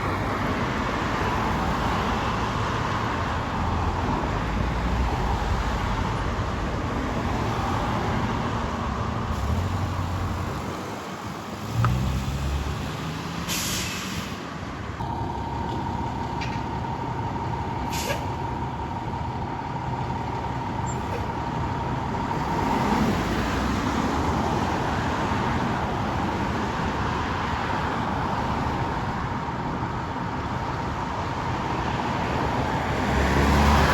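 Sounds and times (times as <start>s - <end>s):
air brakes hissing: 13.4s - 14.5s, 17.9s - 18.4s.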